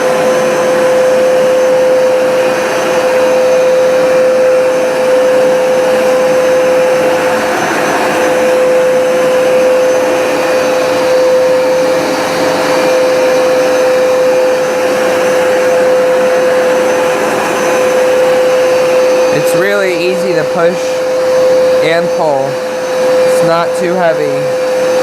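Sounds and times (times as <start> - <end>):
carpet cleaner motor hum: 0.0 - 25.0.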